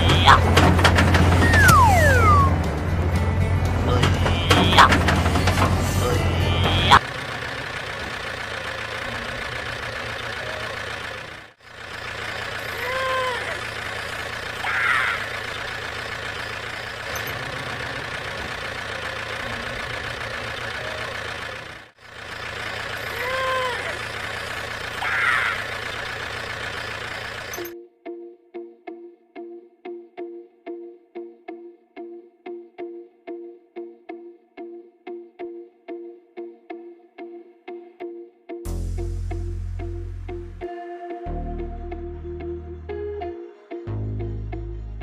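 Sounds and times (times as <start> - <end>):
tractor engine running: 0.0 - 27.7
brief chirp: 1.4 - 2.6.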